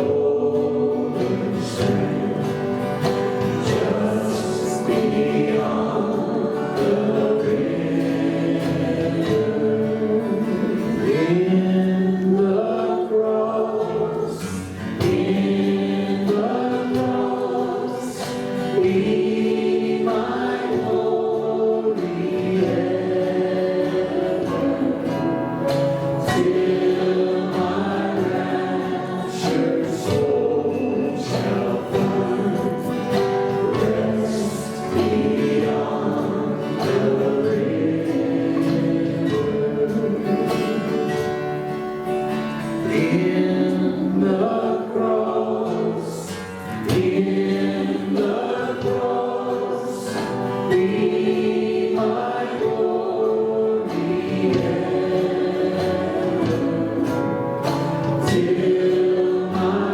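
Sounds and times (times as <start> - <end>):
congregation singing a hymn: 0.0 - 59.9
instrumental accompaniment: 13.9 - 59.9.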